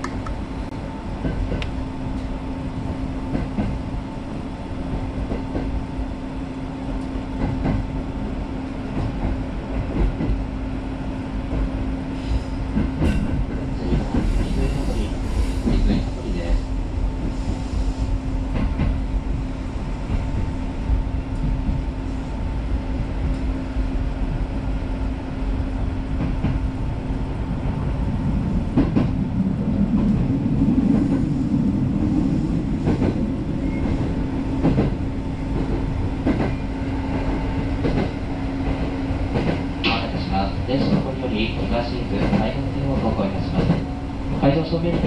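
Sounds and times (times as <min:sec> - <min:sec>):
train motor hum: 0:00.0 - 0:45.0
wheels rumbling on rails: 0:00.0 - 0:45.0.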